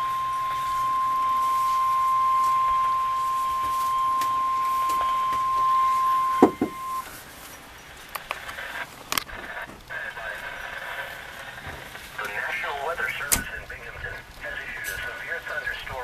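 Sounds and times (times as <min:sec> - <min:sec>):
high alert beep: 0:00.0 - 0:07.0
sharp clicks: 0:13.2 - 0:13.6.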